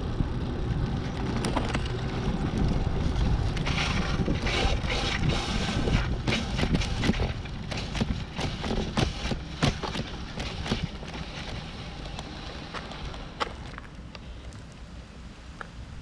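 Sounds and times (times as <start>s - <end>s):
wind rumble on microphone: 0.0s - 14.9s
irregular knocks and crunches: 3.4s - 14.8s.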